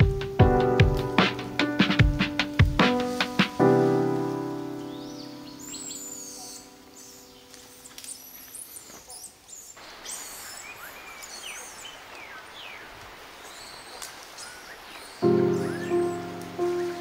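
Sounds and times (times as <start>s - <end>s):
steady background hiss: 0.0s - 17.0s
birds chirping and whistling: 4.5s - 17.0s.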